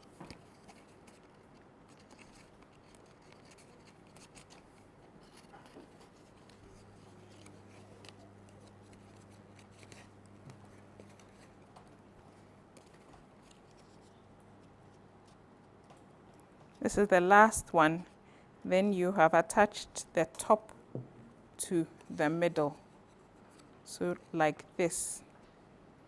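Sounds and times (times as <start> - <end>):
paper rustling and clicking: 0.0 - 16.8.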